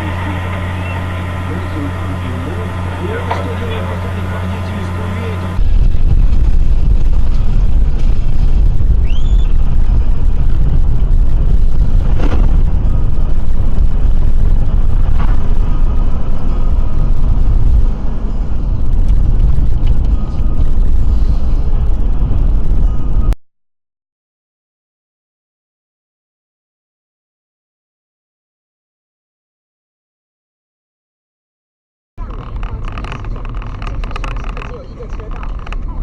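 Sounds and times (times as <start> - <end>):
vehicle engine and road noise: 0.0 - 23.4, 32.2 - 36.0.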